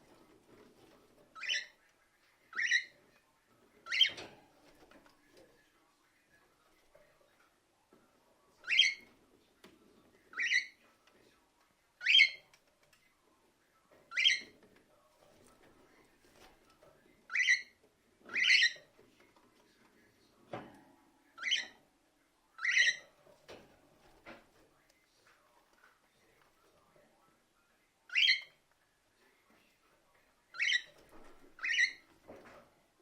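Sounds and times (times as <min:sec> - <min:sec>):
cockatiel chirping: 0:01.4 - 0:01.8, 0:02.5 - 0:02.9, 0:03.9 - 0:04.2, 0:08.6 - 0:09.0, 0:10.3 - 0:10.8, 0:12.0 - 0:12.4, 0:14.1 - 0:14.5, 0:17.3 - 0:17.7, 0:18.3 - 0:18.8, 0:21.4 - 0:21.8, 0:22.6 - 0:23.1, 0:28.1 - 0:28.5, 0:30.5 - 0:31.0, 0:31.6 - 0:32.0.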